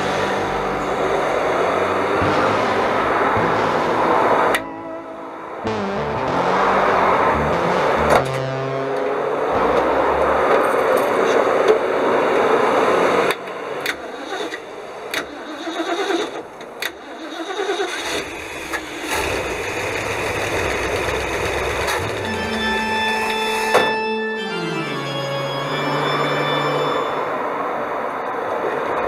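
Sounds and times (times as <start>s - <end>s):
engine cranking: 13.3s - 22.4s
engine running with low rumble: 18.1s - 23.3s.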